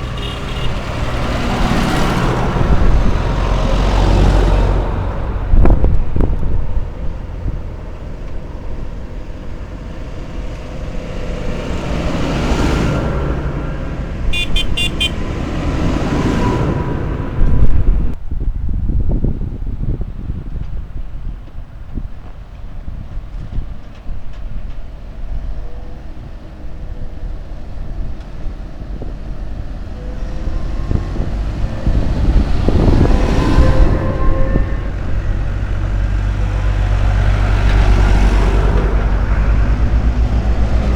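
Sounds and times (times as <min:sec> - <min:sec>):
vehicle engines rumbling: 0:00.0 - 0:40.9
wind buffeting microphone: 0:00.0 - 0:40.9
high-pitched horn beeps: 0:14.3 - 0:15.2, 0:32.6 - 0:35.4.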